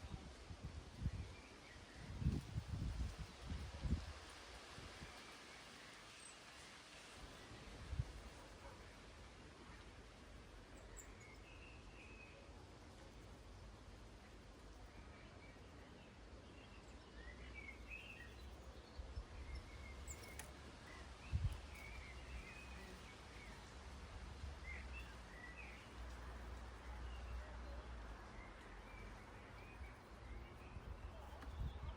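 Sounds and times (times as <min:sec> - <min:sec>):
small birds chirping: 0:09.7 - 0:31.9.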